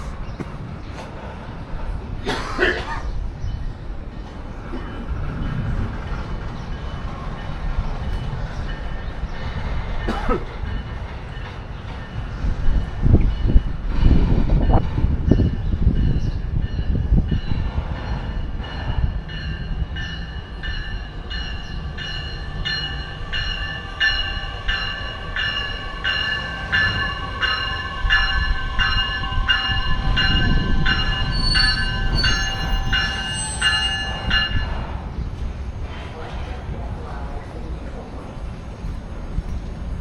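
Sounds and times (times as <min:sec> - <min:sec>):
train rumbling on tracks: 0:00.0 - 0:40.0
railroad bell ringing: 0:05.0 - 0:10.1, 0:10.7 - 0:13.9, 0:15.4 - 0:35.0.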